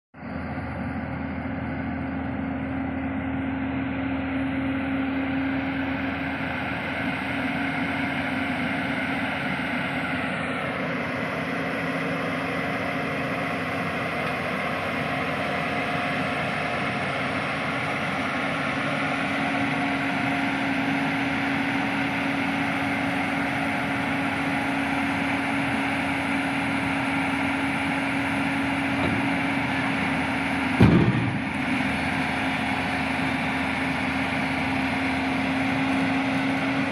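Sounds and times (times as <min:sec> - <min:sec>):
diesel engine running: 0:00.2 - 0:36.9
loud knock: 0:30.8 - 0:31.5.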